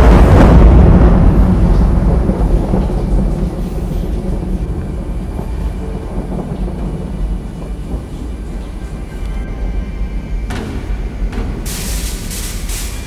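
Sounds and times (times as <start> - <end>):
deep low rumble: 0.0 - 12.9.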